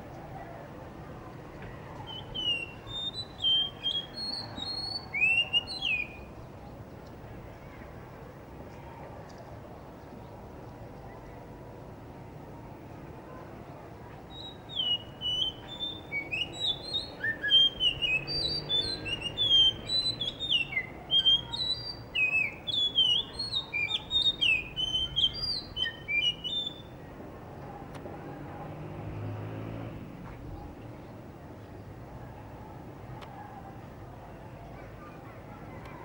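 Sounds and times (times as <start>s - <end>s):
thrush singing whistled notes: 2.1s - 6.4s, 14.3s - 27.1s.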